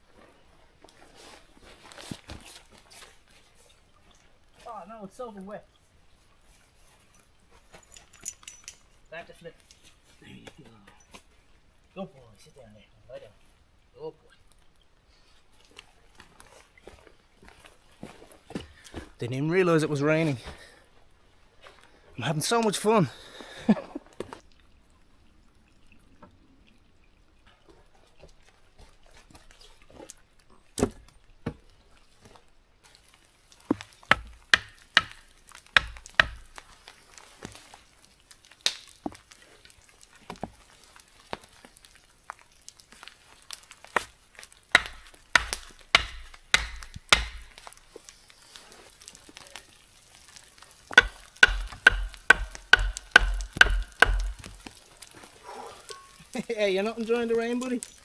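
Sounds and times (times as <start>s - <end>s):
faint hiss of rain: 0.0s - 58.0s
raindrops tapping on microphone: 32.9s - 58.0s.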